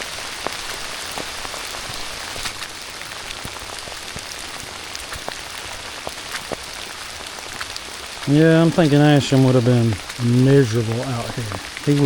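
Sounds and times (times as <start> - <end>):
raindrops tapping close by: 0.0 - 12.0
steady rain hiss: 0.0 - 12.0.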